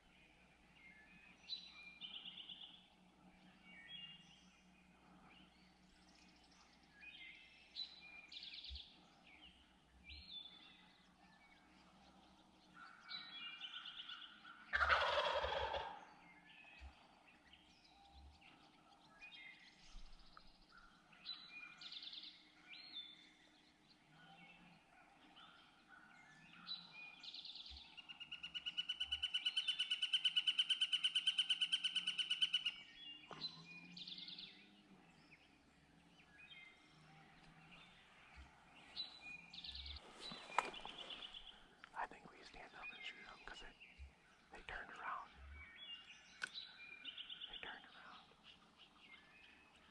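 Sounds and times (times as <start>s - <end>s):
songbird chirps: 0.0s - 49.9s
turkey gobbling: 14.7s - 16.0s.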